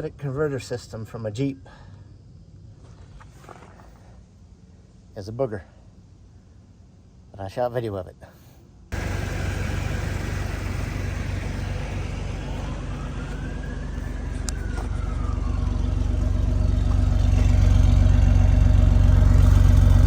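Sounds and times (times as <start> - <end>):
car engine idling: 8.9 - 20.0
faint tone rising and falling: 8.9 - 20.0.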